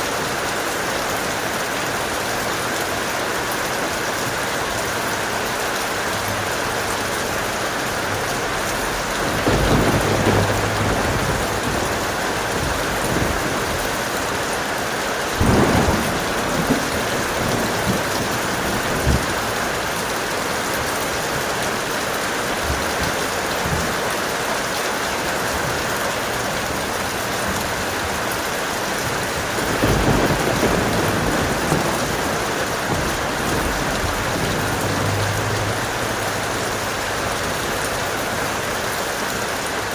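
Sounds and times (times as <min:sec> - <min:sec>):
heavy rain: 0:00.0 - 0:39.9
thunder rumbling: 0:07.4 - 0:24.3, 0:25.3 - 0:38.8.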